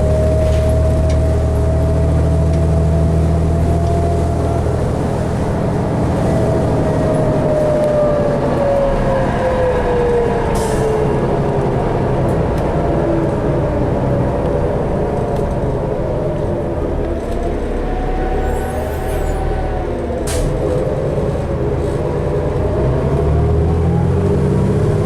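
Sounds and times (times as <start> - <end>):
bus rumbling: 0.0 - 25.0
drivetrain whine: 0.0 - 25.0.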